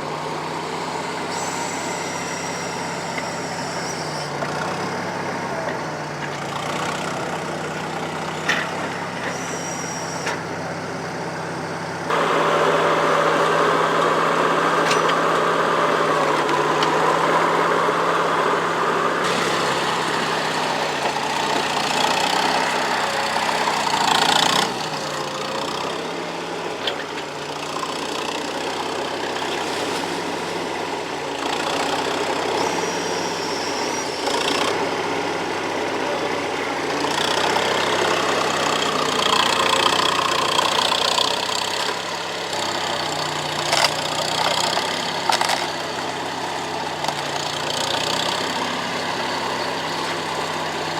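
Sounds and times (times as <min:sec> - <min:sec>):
skid steer engine running: 0:00.0 - 0:50.9.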